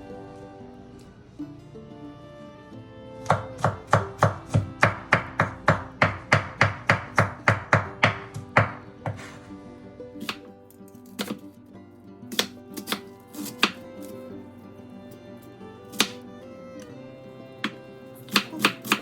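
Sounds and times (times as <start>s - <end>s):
knife chopping on cutting board: 3.2s - 9.4s, 10.2s - 11.6s, 12.3s - 14.2s, 15.9s - 16.2s, 17.6s - 19.0s.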